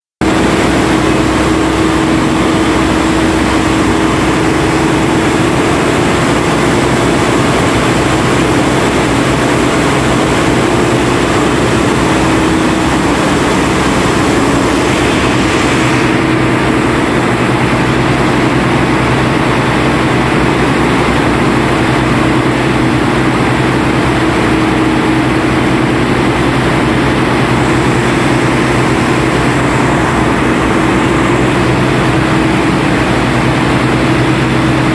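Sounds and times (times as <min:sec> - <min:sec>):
heavy boat engine running: 0:00.2 - 0:34.9
rushing noise: 0:00.2 - 0:34.9.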